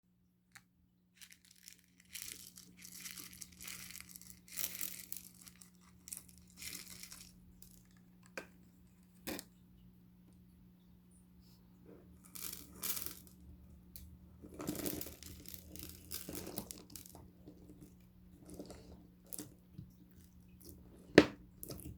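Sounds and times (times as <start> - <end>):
slime crinkling and crackling: 1.2 - 8.4, 14.4 - 19.6.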